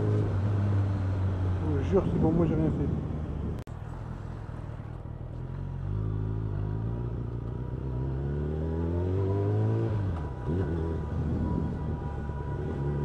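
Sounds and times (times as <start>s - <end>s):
motorcycle engine accelerating: 5.3s - 13.0s.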